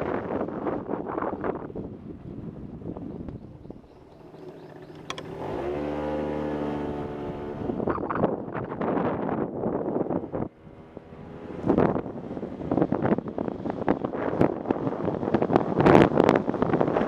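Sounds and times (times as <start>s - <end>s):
wind buffeting microphone: 0.0s - 17.0s
motorcycle engine running: 0.2s - 17.0s
sharp click: 4.4s - 5.3s.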